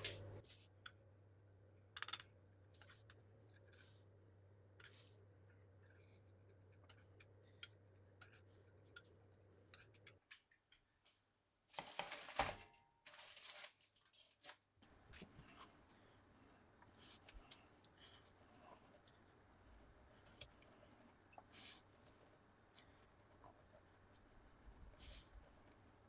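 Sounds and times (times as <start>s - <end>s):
scraping and rustling: 11.8s - 26.0s
low steady hum: 14.8s - 26.0s.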